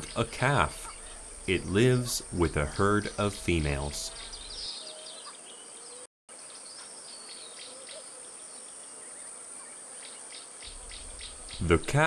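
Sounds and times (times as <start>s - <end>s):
insect trilling: 0.0s - 4.7s, 10.0s - 12.0s
bird chirps: 0.0s - 12.0s.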